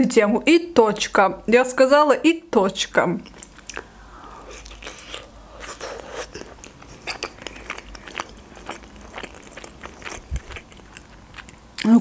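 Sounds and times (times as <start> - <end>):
person chewing with mouth clicks: 3.2 - 11.9.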